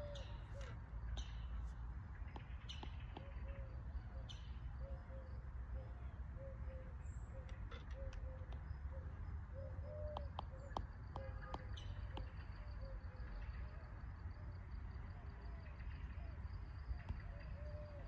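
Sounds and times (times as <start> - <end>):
birds chirping: 0.0 - 13.8.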